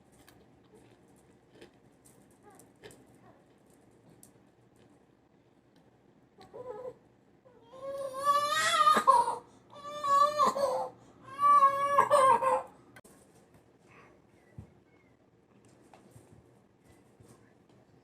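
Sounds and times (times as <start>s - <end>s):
young child crying: 6.5s - 12.8s.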